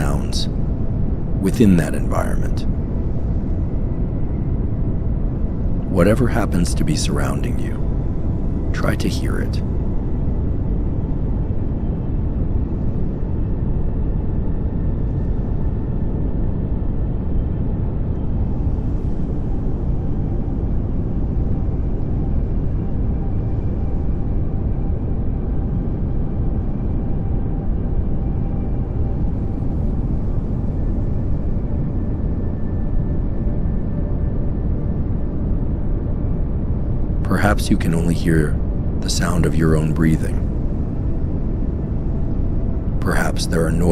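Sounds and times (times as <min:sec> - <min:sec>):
pink noise hiss: 0:00.0 - 0:00.5, 0:43.0 - 0:43.9.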